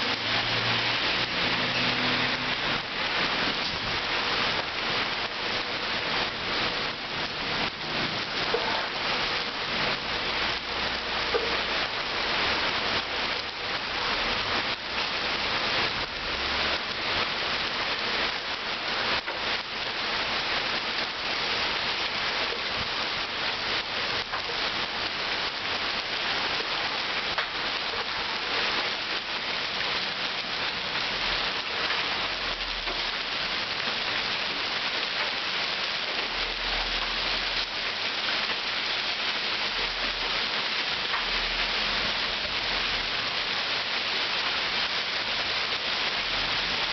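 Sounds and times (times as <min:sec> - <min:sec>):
heavy rain hissing: 0:00.0 - 0:46.9
raindrop hits: 0:06.1 - 0:13.7.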